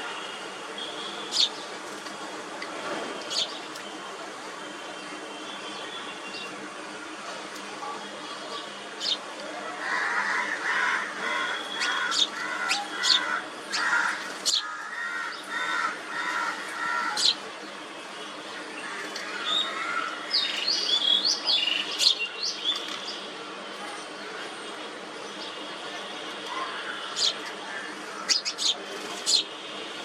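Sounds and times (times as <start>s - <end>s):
small birds chirping: 28.2s - 29.6s.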